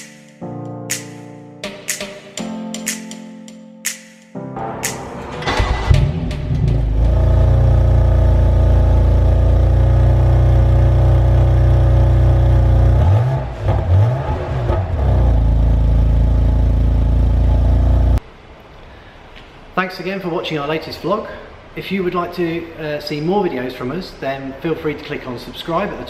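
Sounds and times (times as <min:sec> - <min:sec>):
car engine idling and revving: 0:05.5 - 0:18.2.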